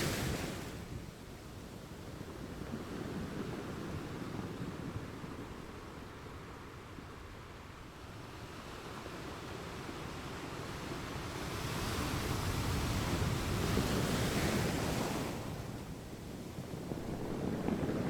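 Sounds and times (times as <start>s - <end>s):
ocean waves washing on shore: 0.0s - 1.2s, 8.9s - 18.0s.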